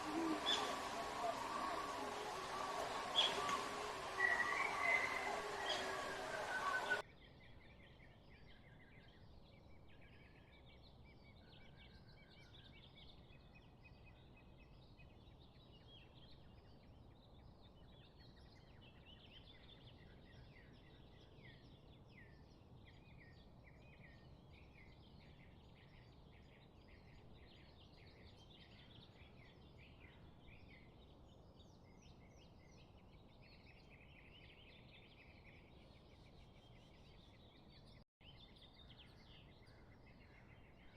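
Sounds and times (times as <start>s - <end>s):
songbirds chirping and trilling: 0.0s - 7.0s
steady low hiss: 0.0s - 7.0s.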